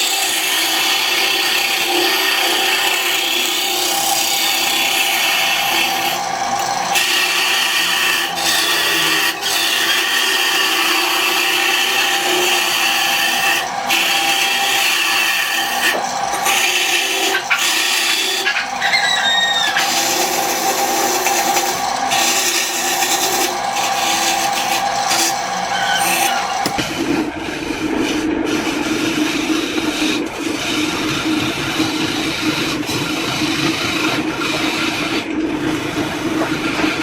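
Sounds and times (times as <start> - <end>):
power tool cutting wood: 0.0 - 37.0
short squeak: 18.8 - 19.8, 25.7 - 26.7.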